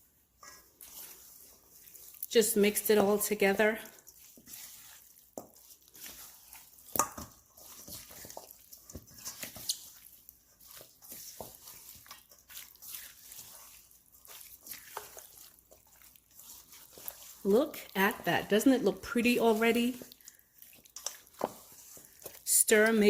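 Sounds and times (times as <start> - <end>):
chicken squelching in seasoning: 0.5 - 23.0.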